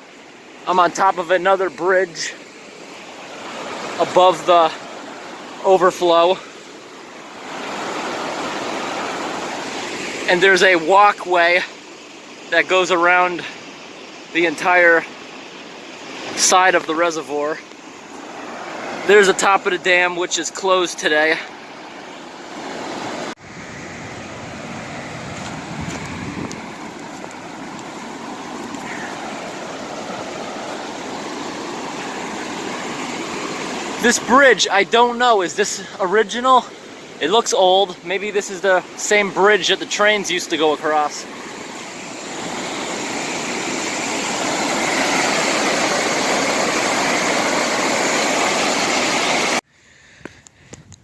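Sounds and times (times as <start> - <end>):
water rushing through spillway: 0.0 - 49.6.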